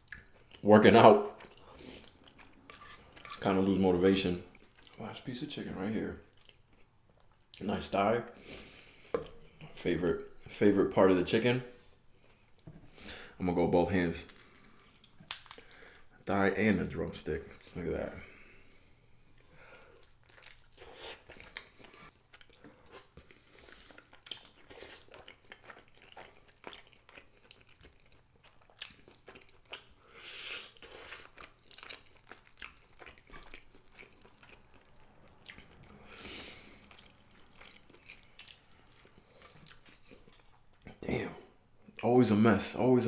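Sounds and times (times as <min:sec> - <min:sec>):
chewing and biting chicken: 0:19.9 - 0:40.5.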